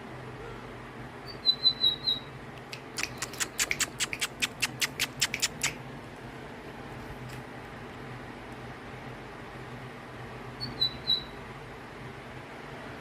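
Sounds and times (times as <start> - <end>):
bird singing: 1.2 - 2.3, 10.6 - 11.4.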